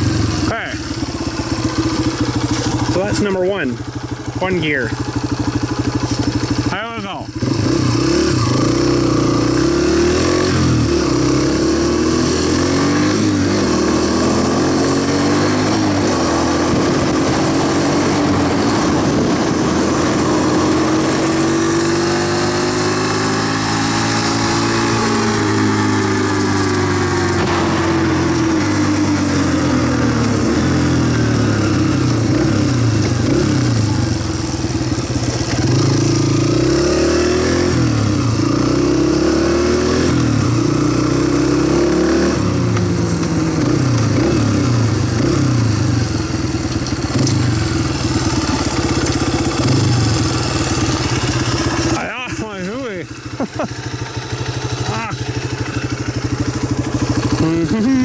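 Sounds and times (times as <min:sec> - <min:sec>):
dirt bike engine accelerating: 0:00.0 - 0:58.0
wind noise on microphone: 0:16.6 - 0:20.4.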